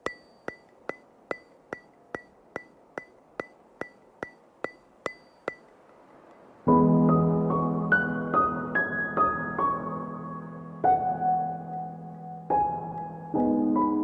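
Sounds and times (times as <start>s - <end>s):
sharp ringing ticks: 0.0s - 6.5s.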